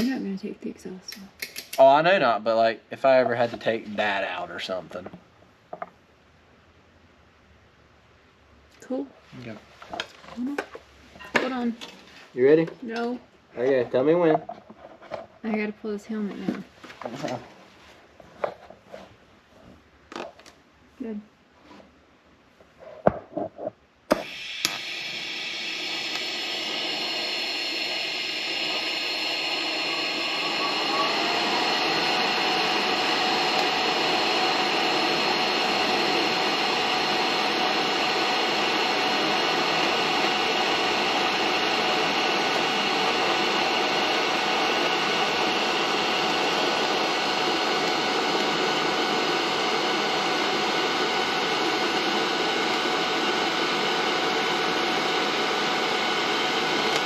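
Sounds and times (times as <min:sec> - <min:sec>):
welder hiss and hum: 0:00.0 - 0:00.3, 0:24.1 - 0:57.0.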